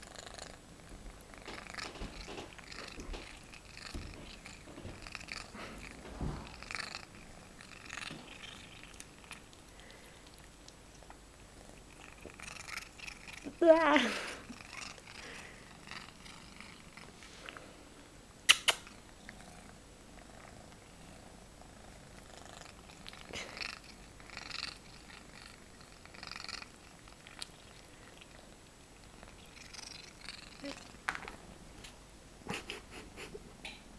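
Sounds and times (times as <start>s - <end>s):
cat making odd noises eating: 1.2s - 11.1s, 11.7s - 17.2s, 18.5s - 20.8s, 22.2s - 31.0s.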